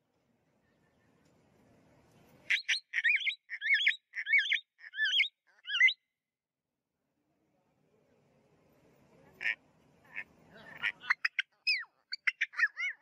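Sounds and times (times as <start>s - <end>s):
bird whistled calls: 2.5s - 6.0s.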